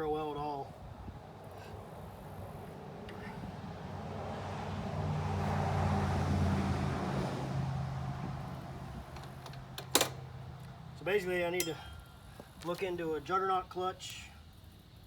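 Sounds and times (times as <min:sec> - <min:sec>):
vehicle passing by: 0:00.7 - 0:11.2.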